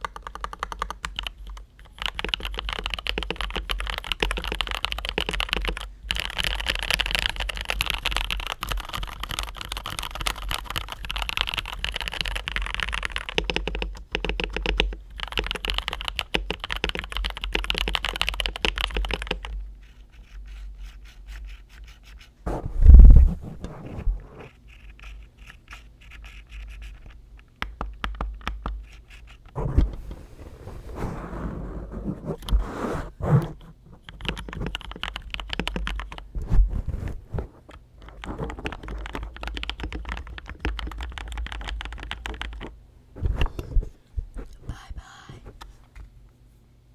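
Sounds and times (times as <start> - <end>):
mechanical keyboard typing: 0.0 - 19.6, 34.1 - 36.2, 38.1 - 42.7.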